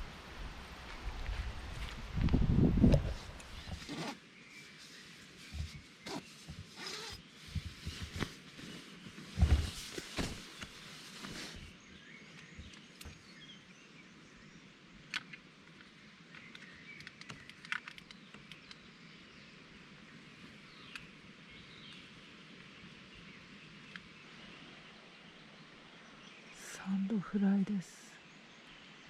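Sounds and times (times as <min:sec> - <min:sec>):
handling knocks and clunks: 0:05.5 - 0:11.7
sharp clicks: 0:15.1 - 0:18.8.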